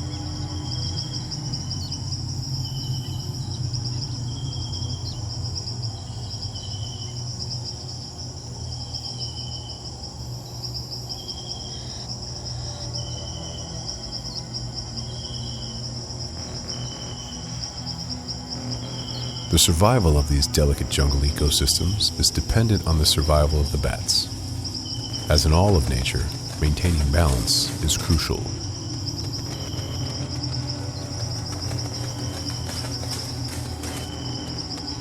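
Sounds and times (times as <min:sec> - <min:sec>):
insect chorus trilling: 0:00.0 - 0:35.0
low steady hum: 0:12.6 - 0:35.0.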